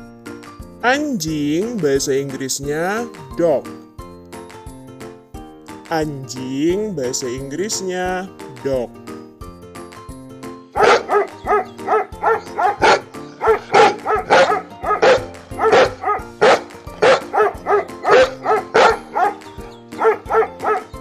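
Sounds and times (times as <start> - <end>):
background music: 0.0 - 21.0
dog barking: 10.8 - 21.0.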